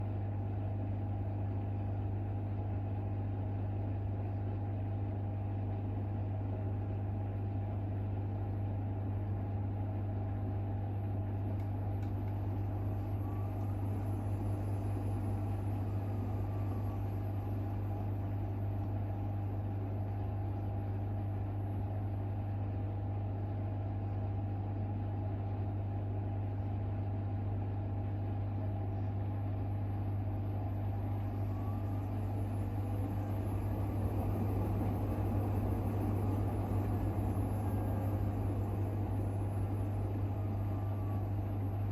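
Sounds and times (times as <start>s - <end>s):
washing machine spinning: 10.7s - 41.9s.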